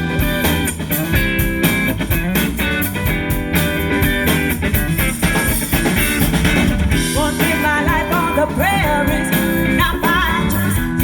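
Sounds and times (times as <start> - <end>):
guitar strumming: 0.0 - 9.8
bass: 0.0 - 11.0
drums: 0.0 - 11.0
vocals: 6.9 - 11.0.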